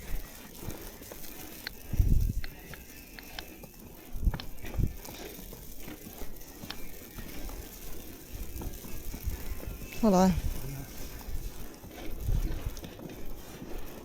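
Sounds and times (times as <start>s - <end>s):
footsteps crunching in snow: 0.0s - 14.0s.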